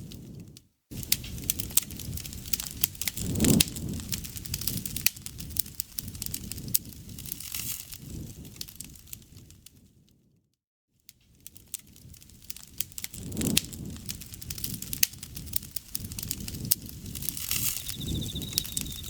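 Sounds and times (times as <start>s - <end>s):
campfire wood crackling: 0.0s - 9.9s, 11.2s - 19.0s
low rumble of flames: 0.0s - 10.3s, 11.2s - 19.0s.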